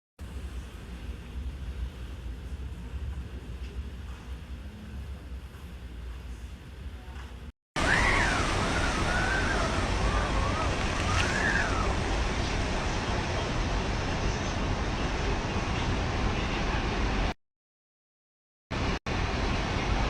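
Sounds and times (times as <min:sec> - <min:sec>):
wind buffeting microphone: 0:07.8 - 0:15.5
rain: 0:07.8 - 0:17.0.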